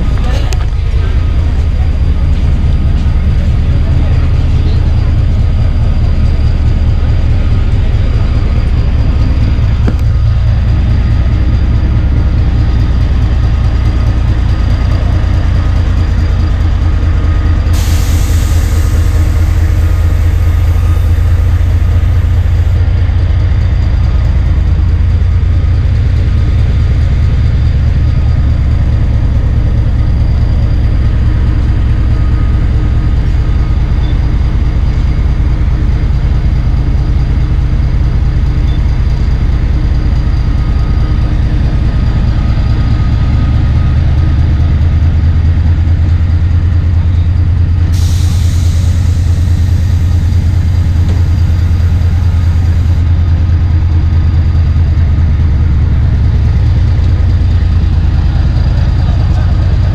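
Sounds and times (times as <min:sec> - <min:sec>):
train rumbling on track: 0:00.0 - 0:59.9
hiss: 0:17.7 - 0:22.7, 0:47.9 - 0:53.0.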